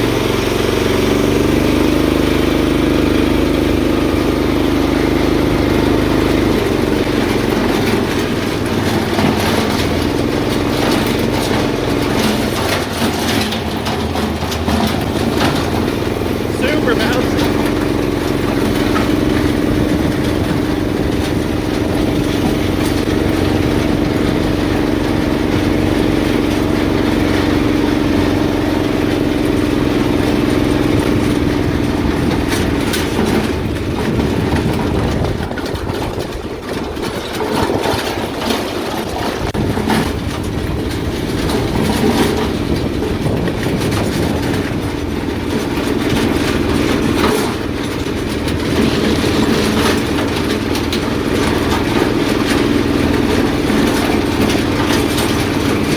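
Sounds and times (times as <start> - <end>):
car engine running: 0.0 - 55.9
clunks and rattles: 0.0 - 55.9.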